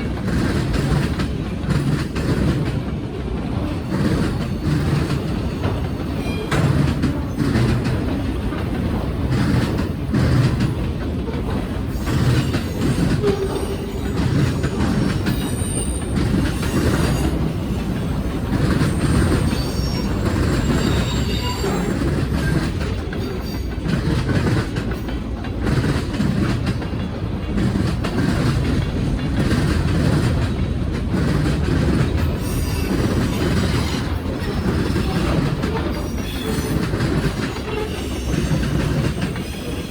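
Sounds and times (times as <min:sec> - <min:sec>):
clicking over rail joints: 0:00.0 - 0:39.9
train wheels rumbling on rail: 0:00.0 - 0:39.9
high-pitched wheel squeals: 0:18.7 - 0:22.6, 0:32.4 - 0:35.1.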